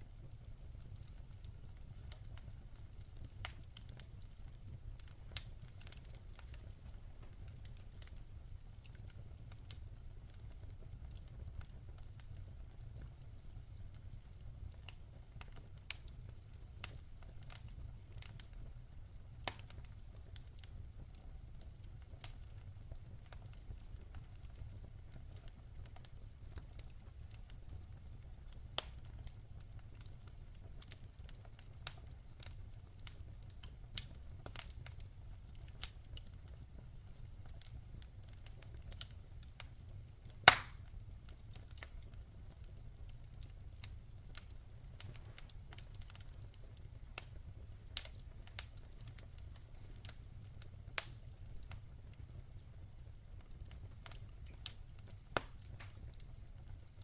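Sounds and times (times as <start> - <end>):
campfire wood crackling and popping: 0.0 - 57.0
fire rumbling: 0.0 - 57.0.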